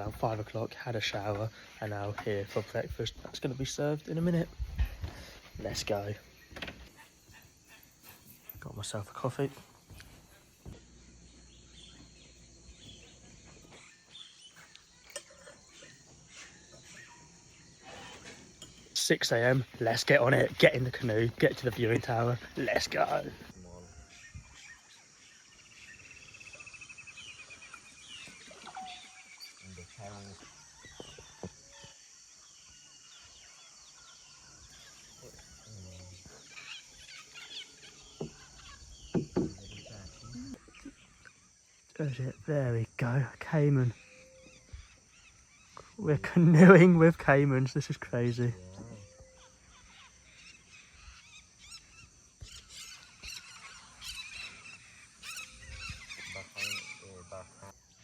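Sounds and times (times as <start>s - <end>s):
high insect drone: 0.0s - 58.0s
bird chirps: 3.4s - 42.5s, 43.4s - 58.0s
loud knocks: 39.1s - 39.6s.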